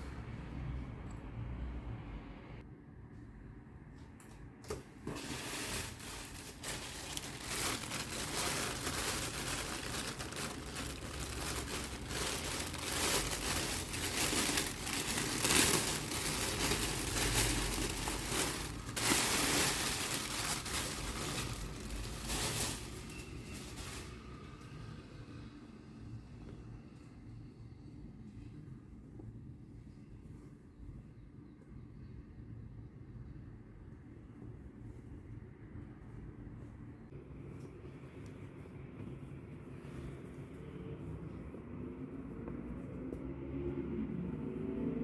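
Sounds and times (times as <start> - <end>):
packaging crinkling and rustling: 5.1 - 24.2.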